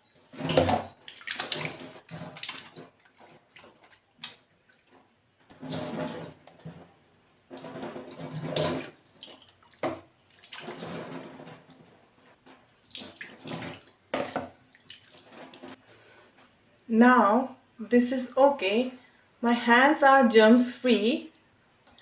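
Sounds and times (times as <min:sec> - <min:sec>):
water pouring and splashing: 0:00.1 - 0:15.8.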